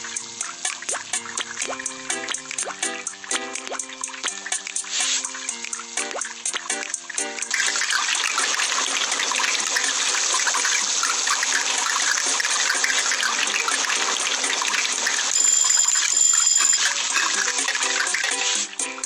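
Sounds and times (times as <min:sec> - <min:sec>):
steady hissing noise: 0:00.0 - 0:19.0
high steady tone: 0:12.5 - 0:18.8.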